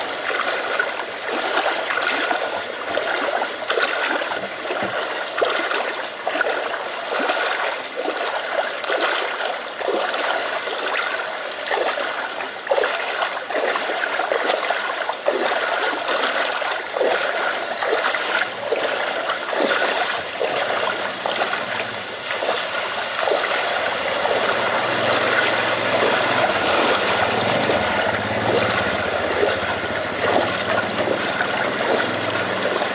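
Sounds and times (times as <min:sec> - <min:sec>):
drips and splashes: 0:00.0 - 0:32.9
running floodwater: 0:00.0 - 0:32.9
rain: 0:18.4 - 0:32.9.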